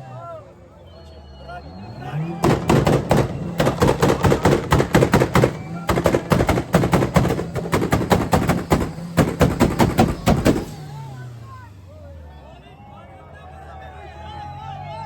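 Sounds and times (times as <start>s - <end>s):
car engine at high revs: 1.0s - 12.2s
exhaust bangs and pops: 2.2s - 11.4s.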